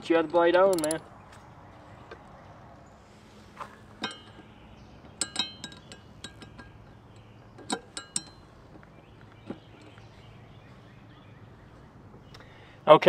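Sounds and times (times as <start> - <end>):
socket wrench clinking on metal: 0.0 - 1.4, 3.8 - 10.1.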